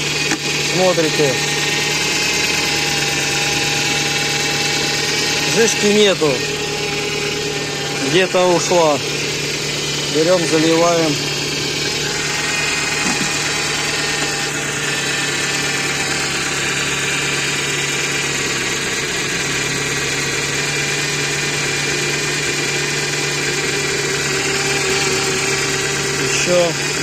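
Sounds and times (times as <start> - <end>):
car engine idling: 0.0 - 27.0
power steering pump droning: 0.0 - 27.0.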